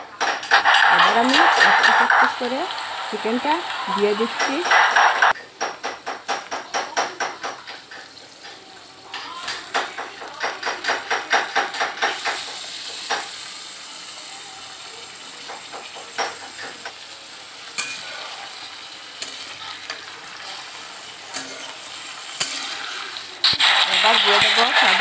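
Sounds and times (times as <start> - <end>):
chicken sizzling in hot oil: 0.0 - 25.0
spatula scraping and knocking pan: 0.2 - 8.6
taps on pan: 4.4 - 13.4, 15.4 - 17.0.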